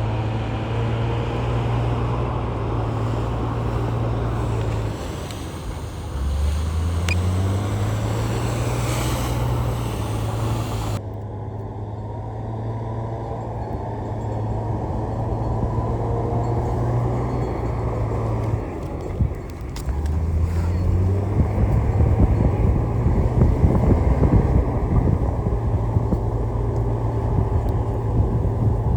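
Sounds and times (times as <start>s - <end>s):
heavy diesel engines running: 0.0s - 28.9s
clattering hiss: 2.6s - 11.0s.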